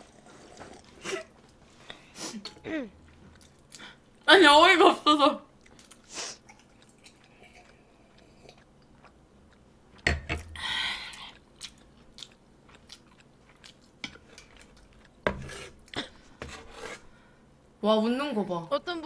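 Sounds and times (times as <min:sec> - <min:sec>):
chewing and mouth clicks: 0:03.1 - 0:03.9, 0:05.6 - 0:09.7, 0:11.1 - 0:15.2.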